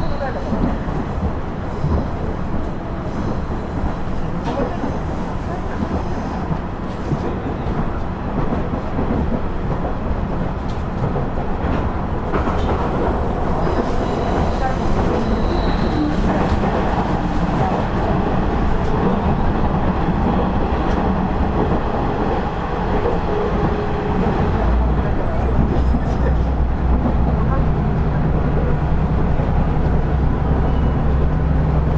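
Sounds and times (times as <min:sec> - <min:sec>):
train wheels on rails: 0:00.0 - 0:31.9
faint high squeal: 0:12.6 - 0:16.6
diesel engine rumble: 0:23.8 - 0:31.9.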